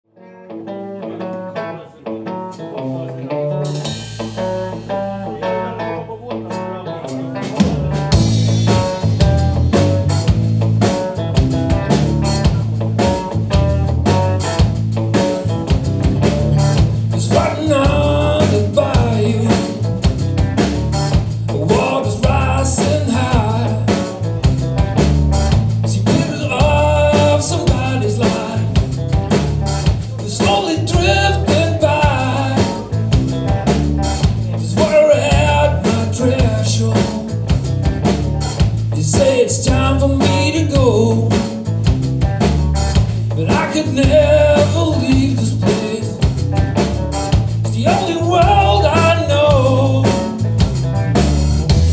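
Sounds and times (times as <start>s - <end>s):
blues guitar lead with bent notes: 0.1s - 51.9s
drum kit: 2.3s - 51.9s
repeating bass line: 7.8s - 51.9s.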